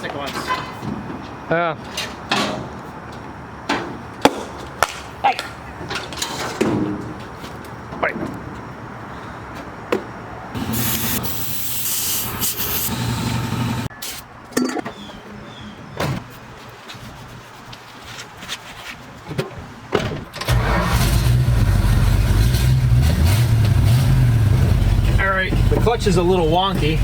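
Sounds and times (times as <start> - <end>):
clunks and knocks: 19.3 - 20.5
pickup truck engine running: 20.5 - 27.0.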